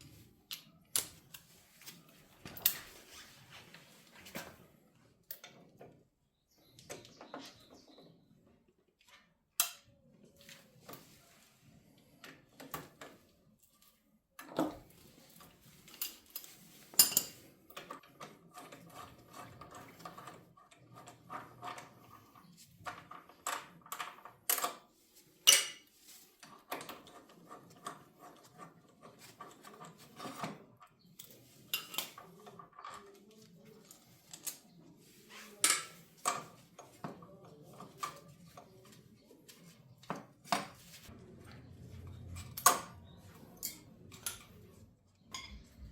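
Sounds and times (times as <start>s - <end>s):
metal tools clinking: 15.7s - 17.5s.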